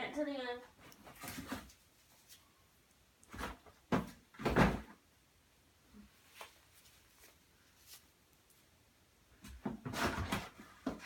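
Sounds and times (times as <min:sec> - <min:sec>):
boxes knocking and scraping: 0:03.3 - 0:05.0, 0:09.4 - 0:11.0.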